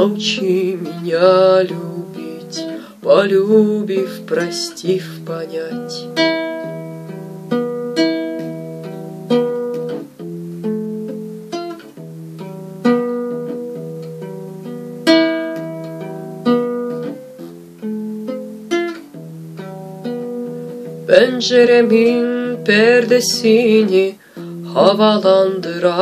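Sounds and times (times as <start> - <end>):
plucked guitar: 0.0 - 26.0.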